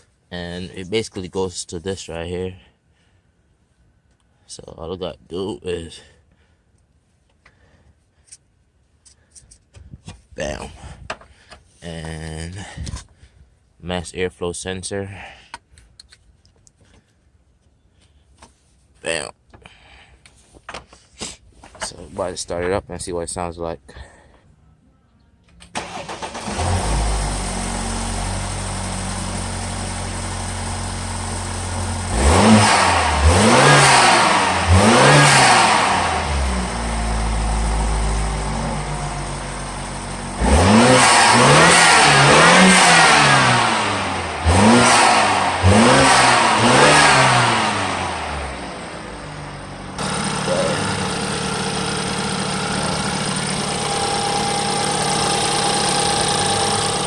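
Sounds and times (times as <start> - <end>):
car engine starting: 25.7 - 57.0
car engine idling: 25.9 - 32.2, 34.3 - 42.4, 43.2 - 57.0
engine revving in short blips: 32.1 - 57.0.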